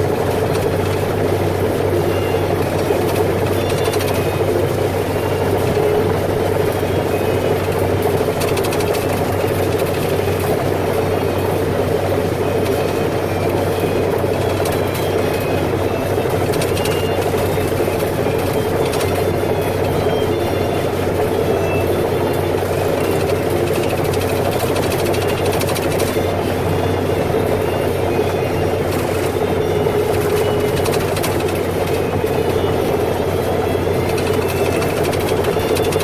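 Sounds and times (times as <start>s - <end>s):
heavy machinery engine droning: 0.0s - 36.0s.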